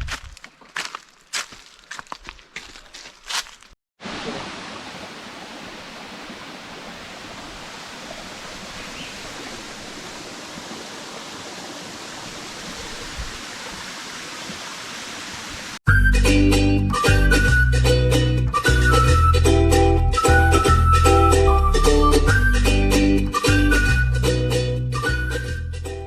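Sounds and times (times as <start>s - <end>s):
waterfall rushing: 4.0s - 15.8s.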